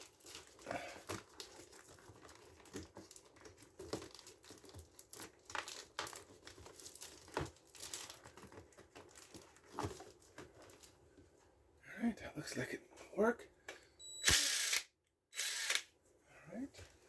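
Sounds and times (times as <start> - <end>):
duct hose crinkling: 0.0 - 11.4.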